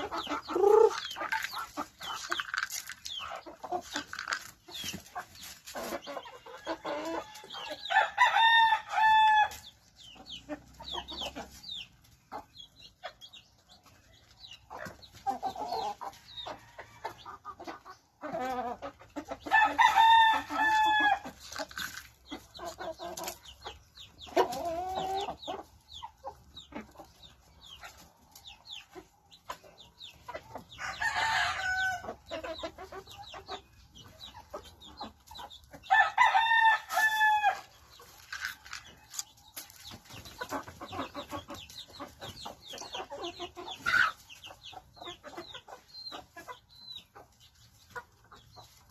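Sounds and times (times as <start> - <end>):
roosters crowing: 0.0 - 1.5, 6.3 - 9.6, 19.5 - 21.4, 30.8 - 32.2, 35.8 - 37.8
chickens clucking: 0.0 - 48.9.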